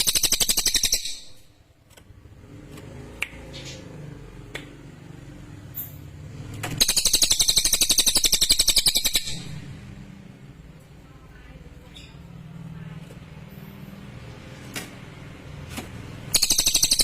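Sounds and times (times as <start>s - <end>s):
bird singing a rapid trill: 0.0s - 1.5s, 6.8s - 9.7s, 16.3s - 17.0s.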